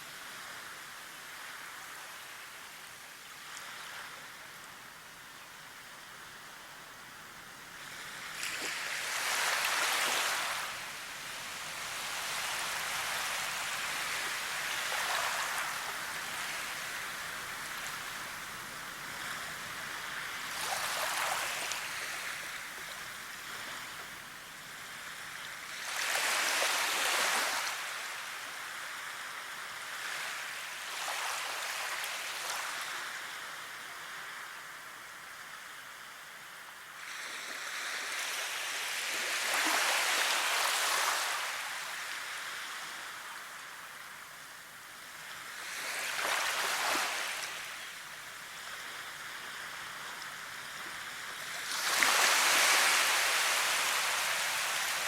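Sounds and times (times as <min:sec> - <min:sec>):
rushing water: 0:49.0 - 0:55.0.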